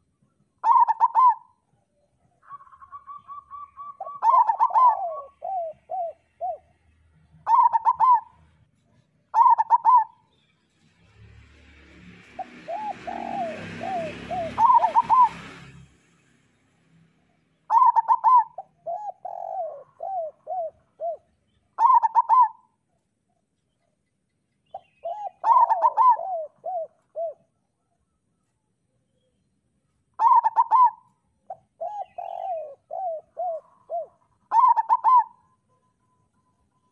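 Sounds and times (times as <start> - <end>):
dove cooing: 0.6 - 1.6, 2.4 - 8.6, 9.3 - 10.2, 12.3 - 15.7, 17.7 - 22.8, 24.7 - 27.9, 30.2 - 35.8.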